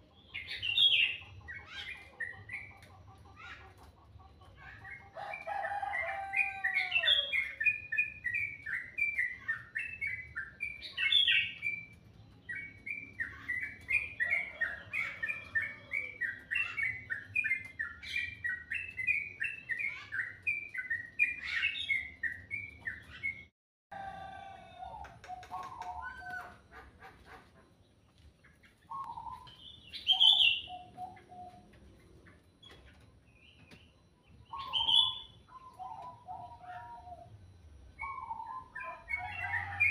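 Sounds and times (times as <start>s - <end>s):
songbird singing: 0.0s - 23.5s, 24.2s - 39.9s
whistled bird calls: 34.5s - 37.3s.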